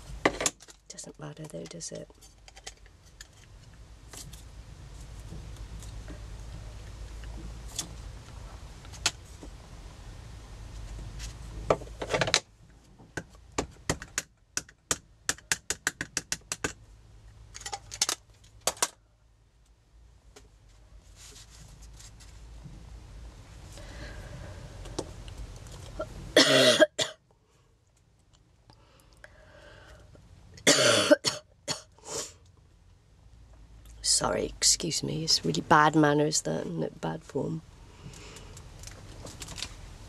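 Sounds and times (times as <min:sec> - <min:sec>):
steady low hum: 0:00.0 - 0:13.6, 0:18.5 - 0:40.0
small clicks and rattles: 0:01.5 - 0:04.5, 0:17.5 - 0:19.0.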